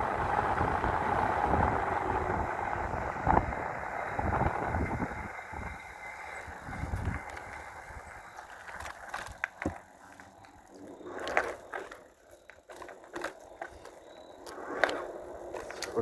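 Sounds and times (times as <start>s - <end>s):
electric bike wind and rolling noise: 0.0s - 16.0s
bike mechanism clicks and knocks: 6.2s - 16.0s.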